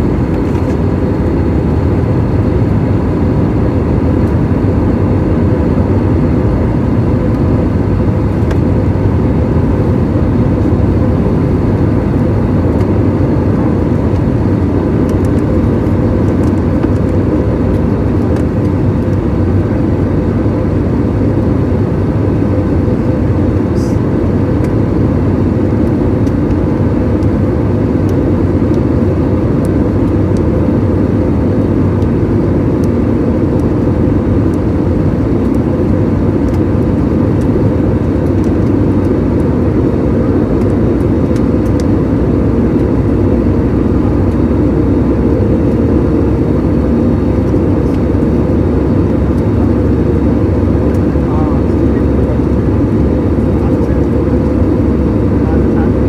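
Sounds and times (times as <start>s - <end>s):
airliner cabin drone: 0.0s - 56.0s.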